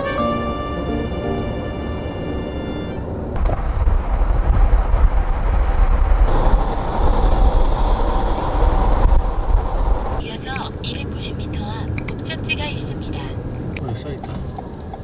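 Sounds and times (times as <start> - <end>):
vehicle rumble: 0.0 - 15.0
high hiss: 6.3 - 10.2.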